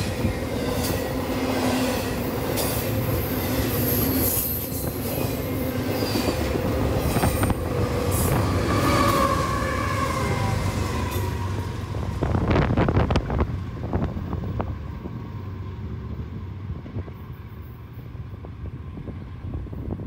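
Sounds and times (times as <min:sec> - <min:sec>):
diesel locomotive rumble: 0:00.0 - 0:20.0
wind buffeting microphone: 0:04.6 - 0:20.0.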